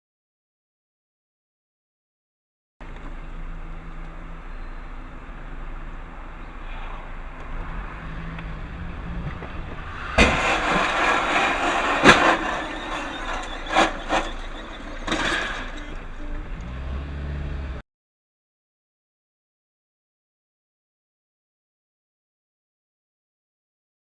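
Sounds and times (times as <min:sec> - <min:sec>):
vehicle running: 0:02.8 - 0:17.8
noisy clatter: 0:05.9 - 0:16.8
loud collision bang: 0:09.5 - 0:16.3.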